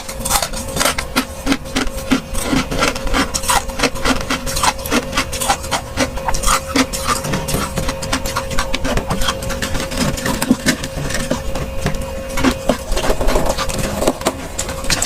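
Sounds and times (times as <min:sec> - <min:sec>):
faint steady hum: 0:00.0 - 0:15.0
frost being crunched and chewed: 0:00.0 - 0:15.0.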